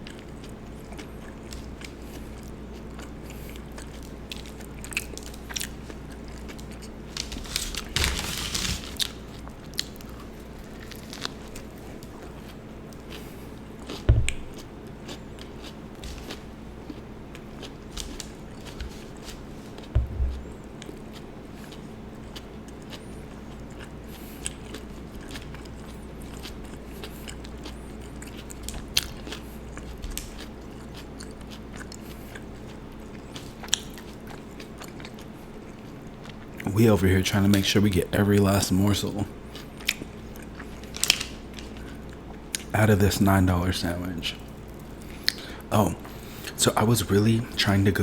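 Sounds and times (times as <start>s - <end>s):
chewing and biting sandwich: 0.0s - 36.7s, 39.4s - 42.7s, 44.4s - 46.6s
low thumps: 14.1s - 14.6s, 19.9s - 20.5s.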